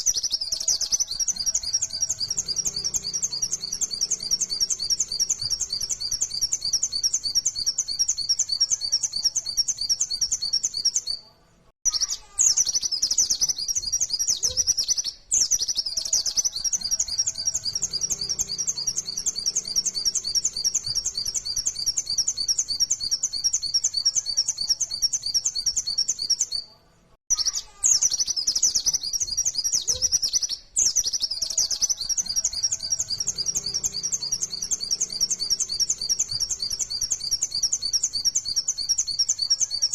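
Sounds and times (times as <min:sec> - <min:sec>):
bird singing rapid chattering notes: 0:00.0 - 0:26.7, 0:27.3 - 0:39.9.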